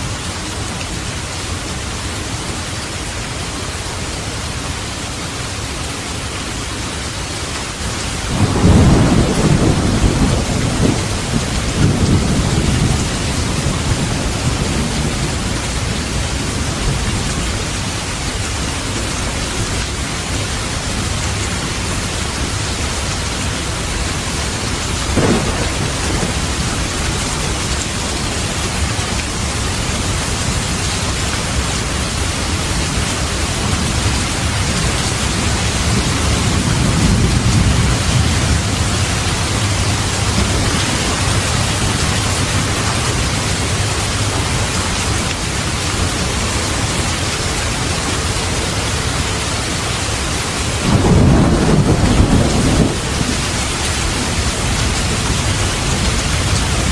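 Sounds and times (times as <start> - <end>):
heavy rain hissing: 0.0 - 56.9
sharp crack of thunder: 8.3 - 15.5, 25.1 - 27.9, 50.8 - 55.2
thunder rumbling: 8.3 - 19.6, 23.8 - 45.0, 48.6 - 56.9.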